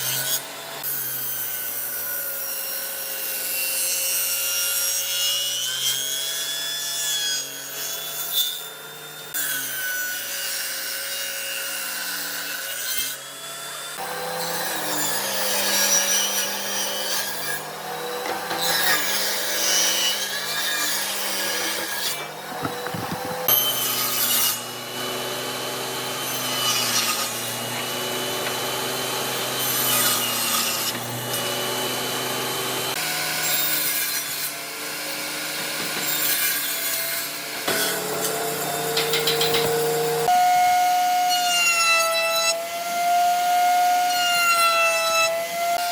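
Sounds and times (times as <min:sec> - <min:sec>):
rasp of wood cutting: 0:09.3 - 0:40.3
power tool motor whine: 0:12.1 - 0:41.0.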